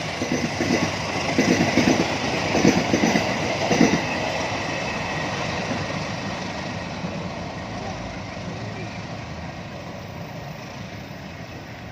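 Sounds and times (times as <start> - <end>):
train wheels clacking over joints: 0.0 - 6.6
train rumble: 0.0 - 11.9.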